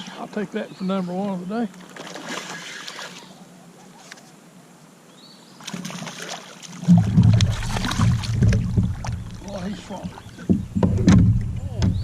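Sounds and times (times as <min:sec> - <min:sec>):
water noise: 0:00.0 - 0:12.0
kayak handling sounds: 0:06.9 - 0:12.0.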